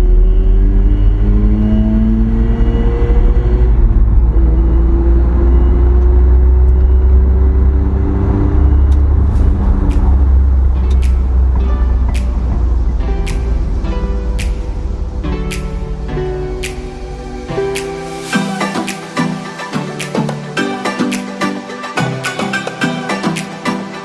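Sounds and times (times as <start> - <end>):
rotary engine accelerating: 0.0 - 11.7
heavy low rumble: 2.1 - 18.1.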